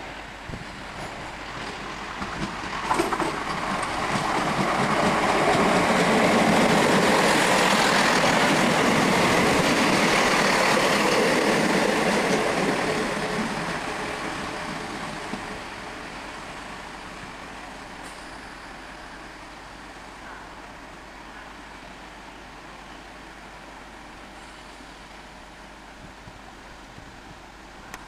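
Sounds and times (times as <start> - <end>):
diesel train passing: 0.0 - 28.0.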